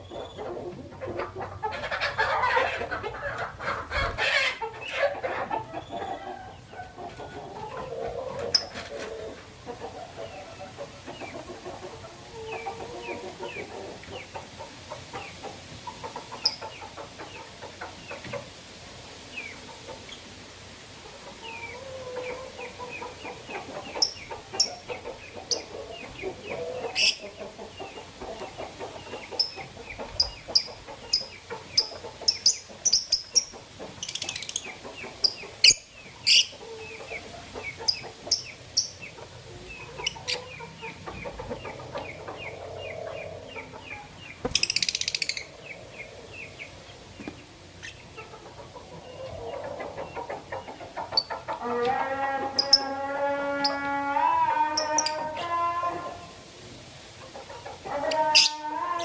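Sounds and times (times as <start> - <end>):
lovebirds chirping: 16.1 - 18.3, 21.4 - 51.5.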